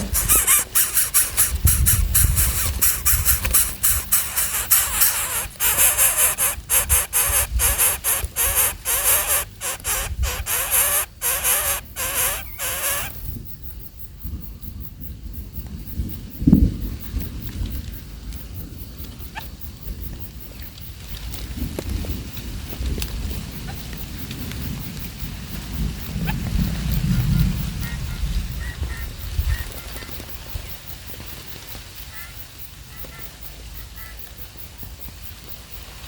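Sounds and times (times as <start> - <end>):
baby birds calling shrilly: 0.0 - 13.2.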